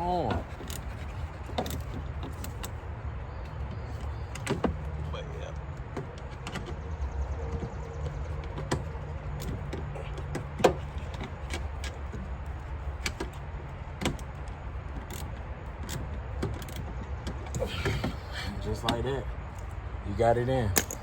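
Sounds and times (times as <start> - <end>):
small clicks and taps of parts: 5.5 - 17.6.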